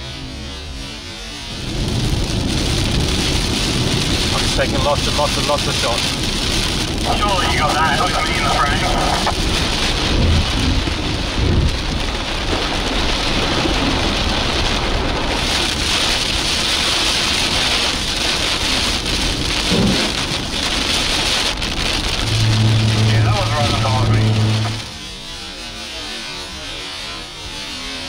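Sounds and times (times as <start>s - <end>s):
low rumble: 0.0s - 12.6s, 18.2s - 26.0s
heavy rain on car roof: 0.0s - 28.0s.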